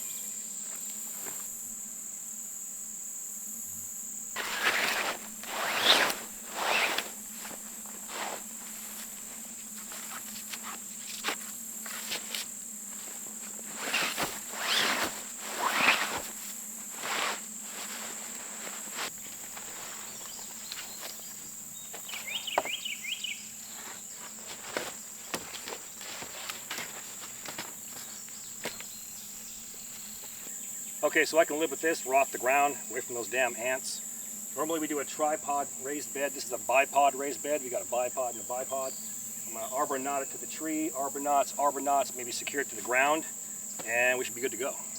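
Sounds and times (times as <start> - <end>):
insects trilling: 0.0 - 44.9
footsteps on forest floor: 0.6 - 1.6, 4.3 - 30.6
rustling: 4.2 - 30.5
knocks of poles and branches: 4.3 - 29.1.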